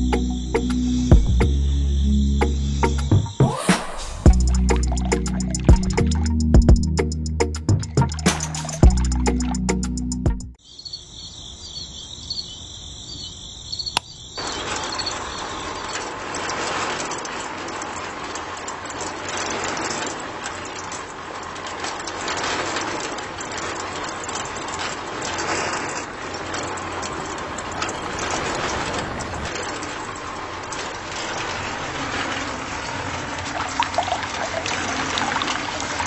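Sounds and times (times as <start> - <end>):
click: 13.9 - 14.1.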